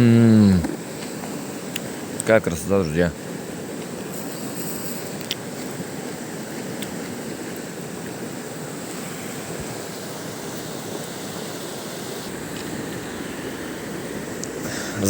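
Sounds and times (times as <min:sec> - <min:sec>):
river water rushing: 0:00.8 - 0:15.0
faint low rumble: 0:12.3 - 0:15.0.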